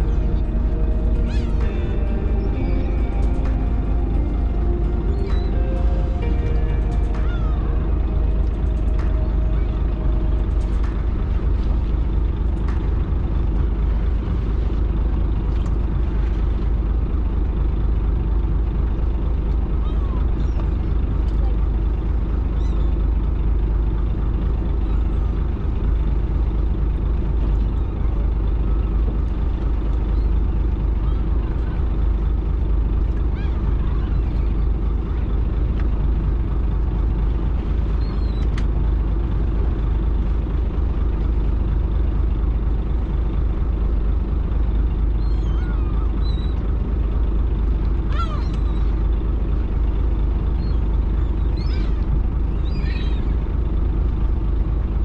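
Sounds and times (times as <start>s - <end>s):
boat engine droning: 0.0s - 55.0s
faint clicks: 38.4s - 38.8s.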